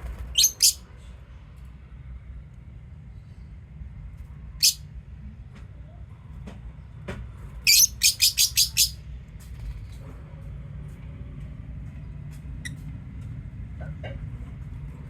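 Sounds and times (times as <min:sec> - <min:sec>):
steady low hum: 0:00.0 - 0:15.0
lovebirds chirping: 0:07.7 - 0:09.0.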